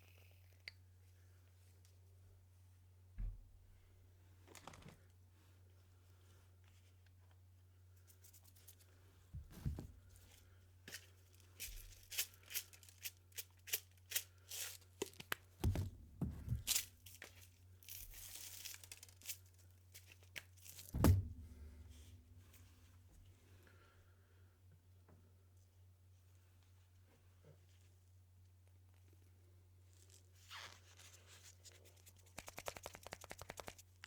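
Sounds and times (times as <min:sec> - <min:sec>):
heavier knocks: 0:15.6 - 0:16.8, 0:21.0 - 0:22.4
low steady hum: 0:15.6 - 0:20.0, 0:20.7 - 0:26.2.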